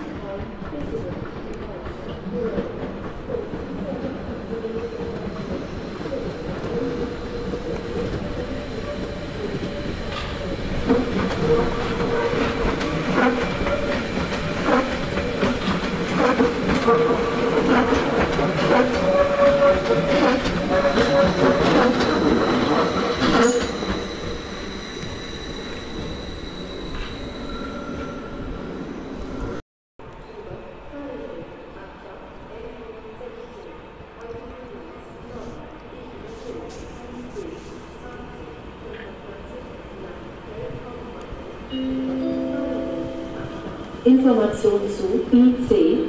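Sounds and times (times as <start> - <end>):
train wheels squealing: 16.7 - 29.6.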